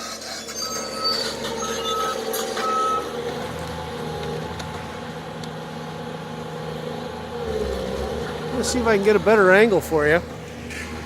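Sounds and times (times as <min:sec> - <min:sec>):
backup alarm beeps: 0:00.6 - 0:03.2.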